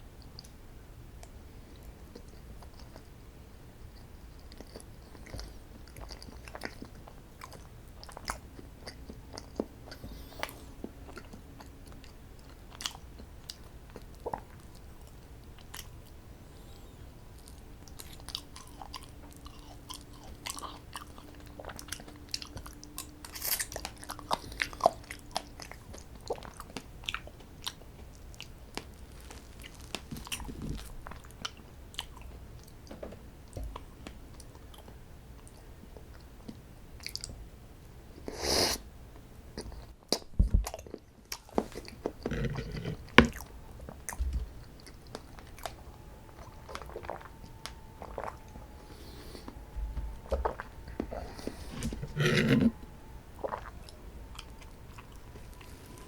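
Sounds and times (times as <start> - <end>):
biting and chewing: 3.9 - 16.2, 17.3 - 37.4, 39.6 - 56.0
crunch: 17.4 - 32.3.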